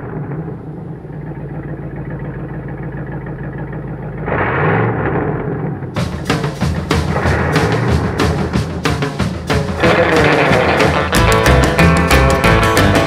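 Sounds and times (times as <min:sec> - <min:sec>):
car engine idling and revving: 0:00.0 - 0:13.0
drum-heavy music: 0:06.0 - 0:13.0.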